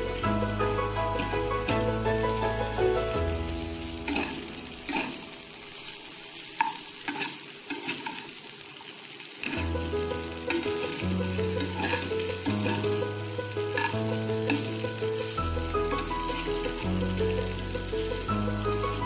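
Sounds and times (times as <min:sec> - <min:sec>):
background music with held notes: 0:00.0 - 0:05.5, 0:09.6 - 0:19.0
noodles sizzling in a pan: 0:00.0 - 0:19.0
spatula scraping a pan: 0:03.9 - 0:05.3, 0:06.5 - 0:08.4, 0:10.4 - 0:15.3.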